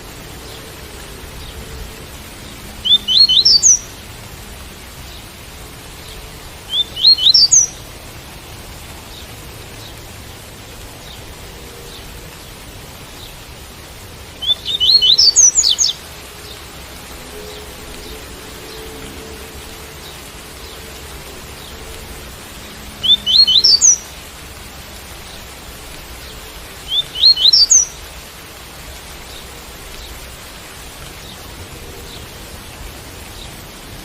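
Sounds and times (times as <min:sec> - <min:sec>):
rain hiss: 0:00.0 - 0:34.0
bird singing whistled notes: 0:02.8 - 0:03.9, 0:06.7 - 0:07.8, 0:14.4 - 0:16.6, 0:22.9 - 0:24.2, 0:26.8 - 0:28.0.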